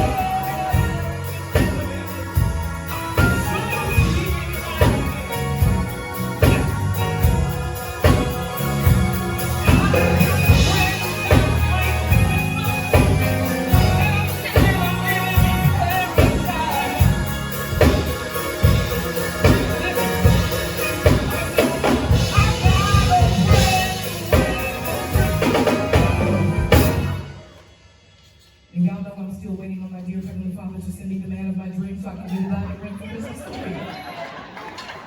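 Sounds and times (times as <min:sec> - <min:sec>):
heavy bass line: 0:00.0 - 0:27.4
drum kit hits: 0:00.0 - 0:27.7
band playing a song: 0:00.0 - 0:28.3.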